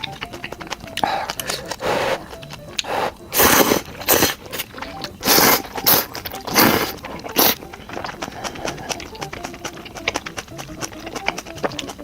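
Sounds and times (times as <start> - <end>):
person slurping noodles: 1.0 - 9.1.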